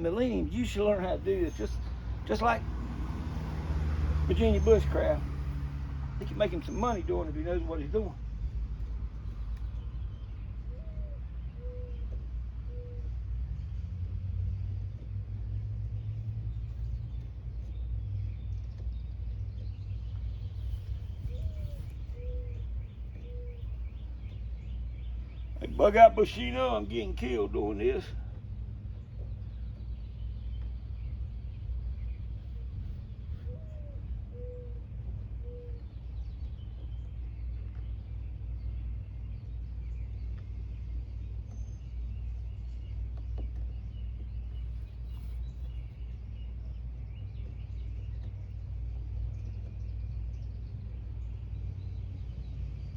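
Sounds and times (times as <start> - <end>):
low outdoor rumble: 0.0 - 52.9
faint bird chirps: 19.6 - 25.8.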